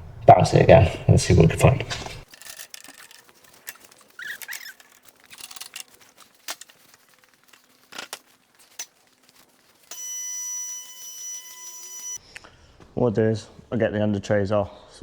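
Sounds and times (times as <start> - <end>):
handling clicks and knocks: 2.2 - 10.0.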